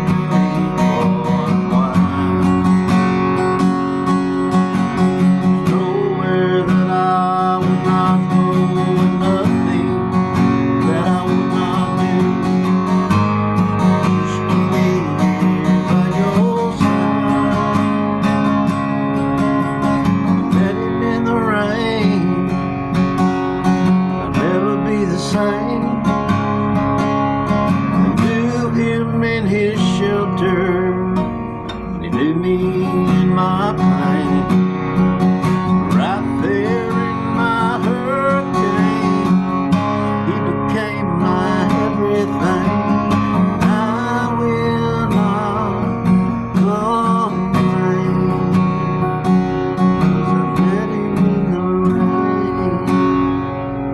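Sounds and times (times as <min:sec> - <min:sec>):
acoustic guitar strumming: 0:00.0 - 0:53.9.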